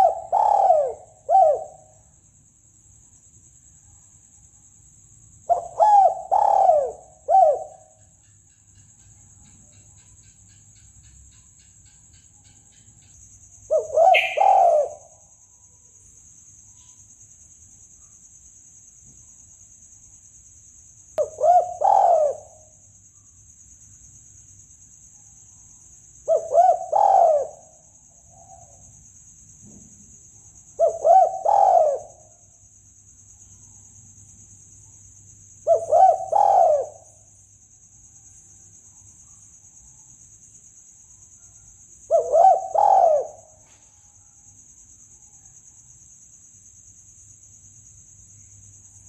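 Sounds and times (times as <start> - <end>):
dove cooing: 0.0 - 1.9, 5.5 - 7.9, 13.7 - 15.1, 21.2 - 22.6, 26.2 - 27.7, 30.8 - 32.2, 35.6 - 37.0, 42.1 - 43.5.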